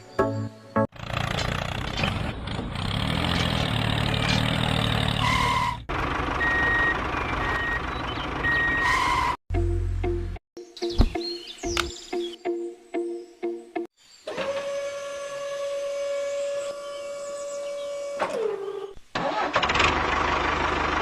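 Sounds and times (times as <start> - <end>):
music: 0.0 - 0.9, 9.5 - 13.9
vehicle engine running: 0.9 - 8.8, 19.6 - 21.0.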